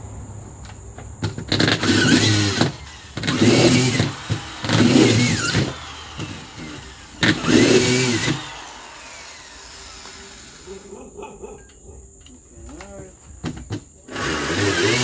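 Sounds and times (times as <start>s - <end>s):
engine revving in bursts: 0.0s - 10.9s, 14.1s - 15.0s.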